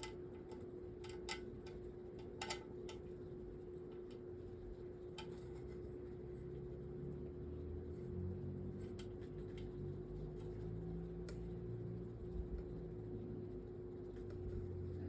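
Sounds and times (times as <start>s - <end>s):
metal fan parts clicking: 0.0s - 3.2s, 5.0s - 5.9s
steady low hum: 0.0s - 15.0s.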